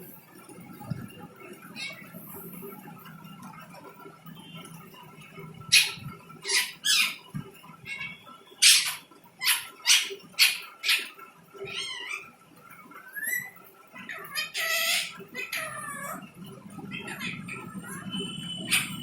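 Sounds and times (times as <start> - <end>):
parrot wavering call: 5.7 - 7.3, 7.9 - 12.3, 13.0 - 16.2, 16.9 - 19.0
parrot squawks: 5.7 - 12.3, 13.0 - 16.2, 16.9 - 19.0.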